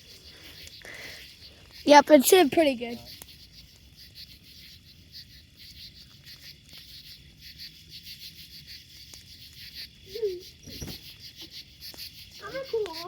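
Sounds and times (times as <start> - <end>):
crickets chirping: 0.0 - 13.0
faint pops from bonfire: 6.1 - 7.0, 8.8 - 13.0.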